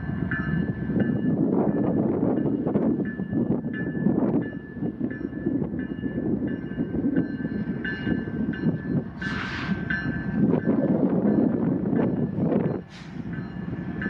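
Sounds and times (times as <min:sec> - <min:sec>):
freight train cars rolling: 0:00.0 - 0:14.0
wind noise on microphone: 0:00.0 - 0:14.0
short high squeal: 0:09.2 - 0:09.8.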